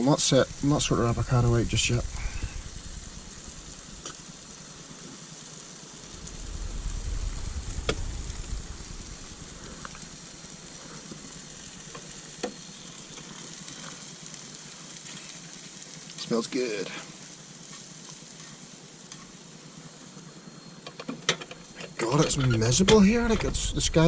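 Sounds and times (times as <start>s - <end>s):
vegetables sizzling in a frying pan: 0.0s - 23.3s
low rumble: 0.3s - 5.0s, 5.8s - 13.1s, 22.3s - 24.0s.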